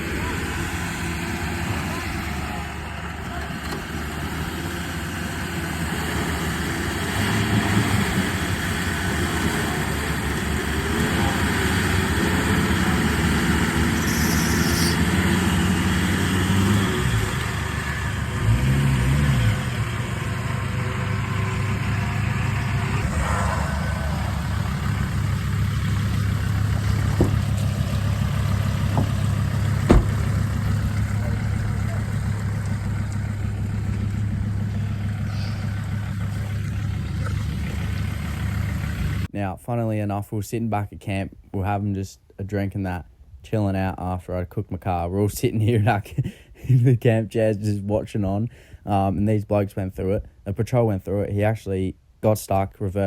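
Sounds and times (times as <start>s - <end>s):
vehicle engine under load: 0.0s - 39.3s
sharp knocks: 26.7s - 30.8s.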